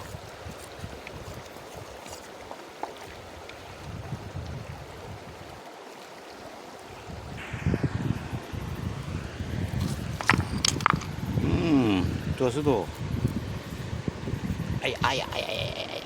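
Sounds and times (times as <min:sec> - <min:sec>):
wind rumbling on microphone: 0:00.0 - 0:02.4, 0:03.0 - 0:05.7, 0:06.4 - 0:16.0
river water over stones: 0:00.0 - 0:07.5, 0:09.8 - 0:12.0.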